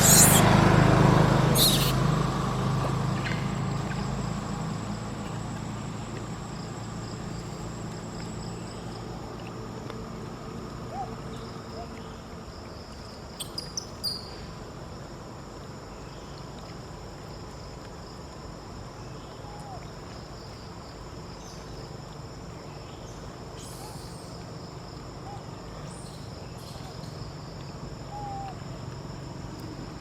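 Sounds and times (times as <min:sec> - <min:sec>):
short sharp high chirps: 0:00.0 - 0:00.5, 0:01.6 - 0:02.0
insects buzzing: 0:00.0 - 0:30.0.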